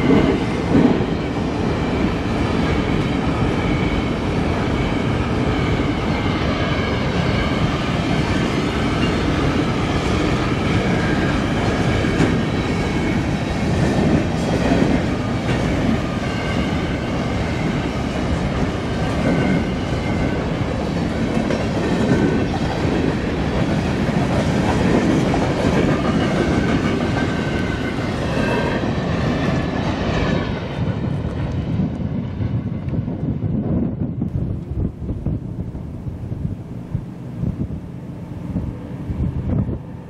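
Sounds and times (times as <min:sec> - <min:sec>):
clickety-clack over rail joints: 0:00.0 - 0:01.2, 0:02.0 - 0:34.9
steel wheels rumbling on rail: 0:00.0 - 0:40.0.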